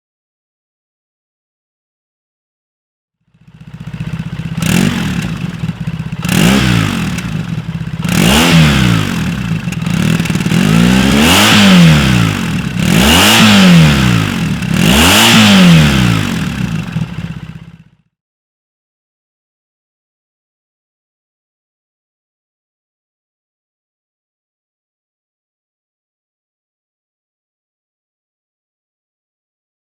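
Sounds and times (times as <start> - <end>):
motorcycle engine revving: 3.3 - 18.1.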